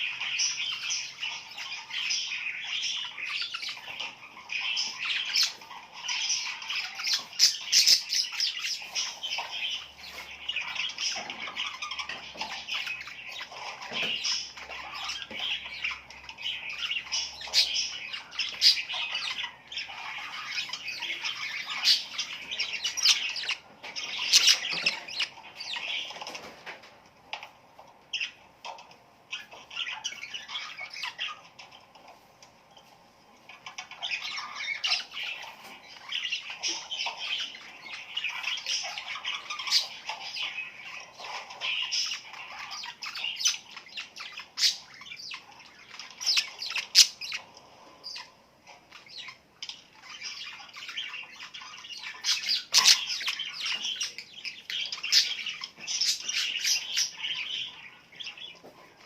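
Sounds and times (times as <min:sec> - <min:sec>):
small birds chirping and squawking: 0:00.0 - 0:59.0.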